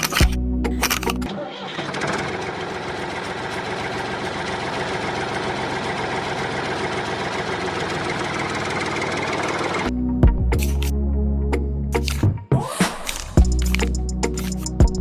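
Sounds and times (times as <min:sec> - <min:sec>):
small motor rattling: 0:00.0 - 0:09.9.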